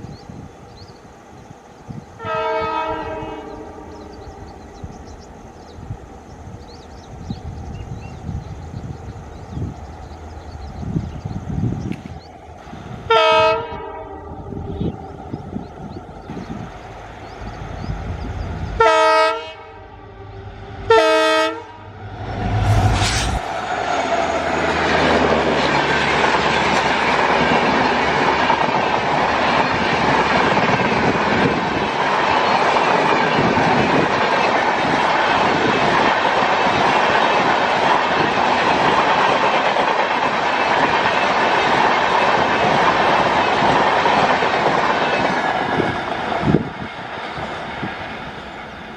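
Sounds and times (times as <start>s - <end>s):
train wheels clattering on rails: 24.6s - 48.9s.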